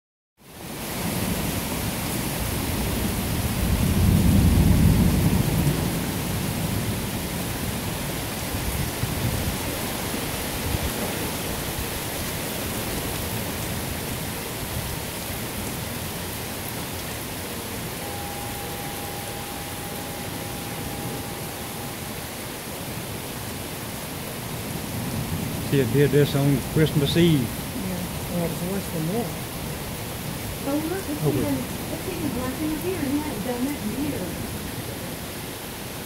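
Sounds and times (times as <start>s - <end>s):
heavy rain: 0.4s - 36.0s
low thunder rumble: 2.7s - 9.6s, 17.8s - 23.6s.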